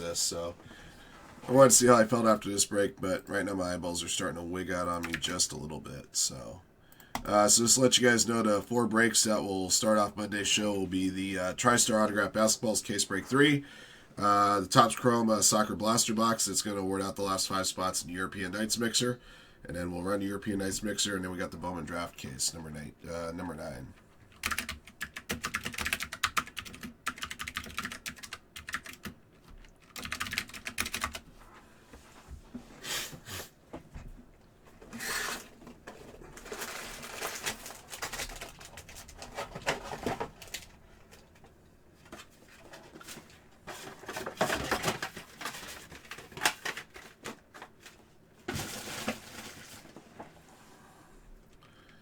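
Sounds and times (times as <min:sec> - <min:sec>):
wrappers crinkling and tearing: 0:36.2 - 0:40.7.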